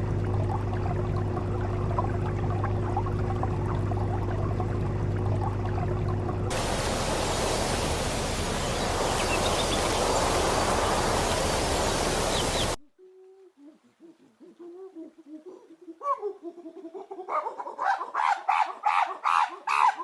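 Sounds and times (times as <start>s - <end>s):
low steady hum: 0.0s - 12.9s
rushing water: 5.2s - 12.8s.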